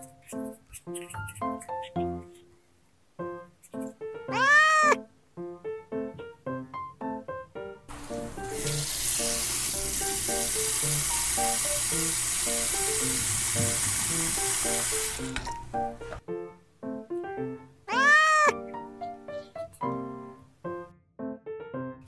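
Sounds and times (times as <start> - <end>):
light plucked music: 0.0 - 2.5, 15.2 - 21.0.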